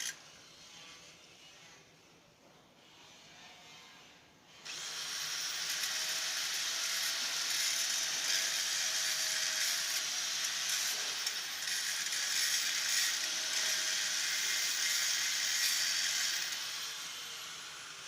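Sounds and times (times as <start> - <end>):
power tool whirring: 0.0 - 1.0, 4.6 - 18.0.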